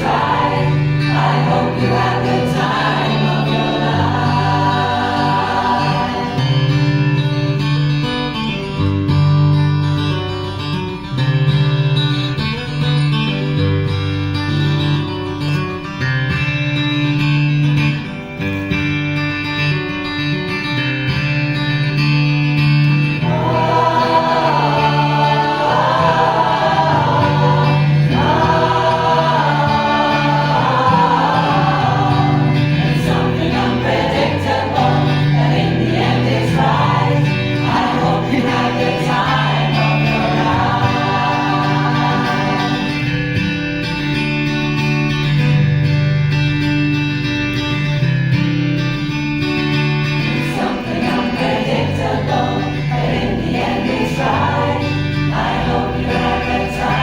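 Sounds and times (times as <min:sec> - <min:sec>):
choir singing a pop song: 0:00.0 - 0:07.2, 0:23.2 - 0:43.4, 0:50.3 - 0:57.0
strummed guitar chords: 0:00.0 - 0:57.0.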